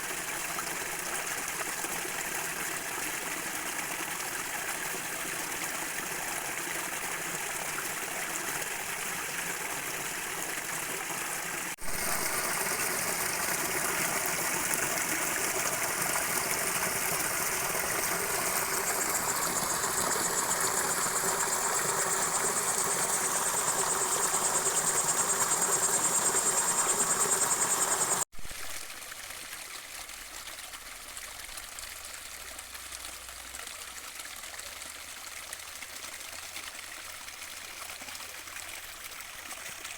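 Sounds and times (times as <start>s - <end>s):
stream water rushing: 0.0s - 28.3s.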